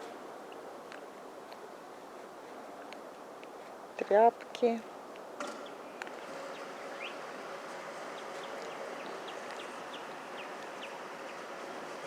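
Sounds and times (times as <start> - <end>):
outdoor background hiss: 0.0 - 12.0
small bird chirping: 5.6 - 7.3, 8.0 - 11.6.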